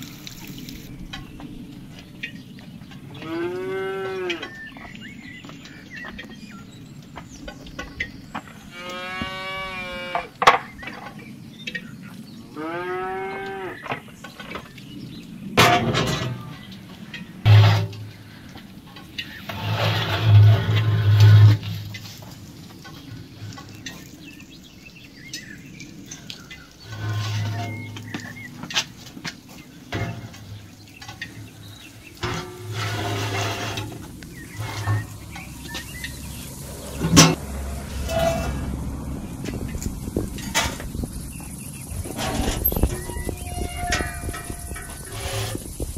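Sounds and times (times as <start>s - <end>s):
cow mooing: 3.2s - 4.5s, 8.7s - 10.3s, 12.5s - 13.8s
metal baking tray scraping: 17.4s - 18.4s, 19.2s - 22.3s, 26.8s - 29.1s, 29.9s - 38.7s, 41.9s - 45.8s.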